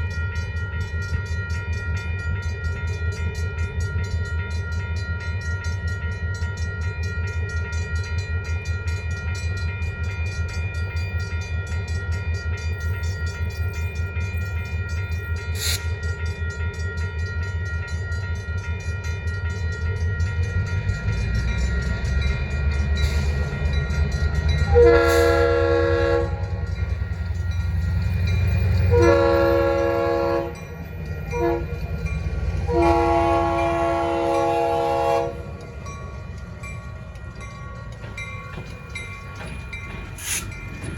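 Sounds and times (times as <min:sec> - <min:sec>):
grade-crossing bell ringing: 0:00.0 - 0:40.9
diesel locomotive rumbling past: 0:20.0 - 0:40.9
locomotive horn blasts: 0:24.7 - 0:26.6, 0:28.9 - 0:30.7, 0:31.3 - 0:31.8, 0:32.6 - 0:35.6.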